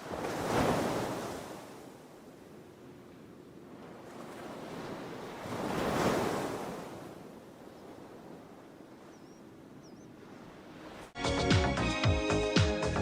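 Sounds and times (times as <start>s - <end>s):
surf washing: 0.0s - 11.2s
wave breaking and washing in: 0.0s - 12.8s.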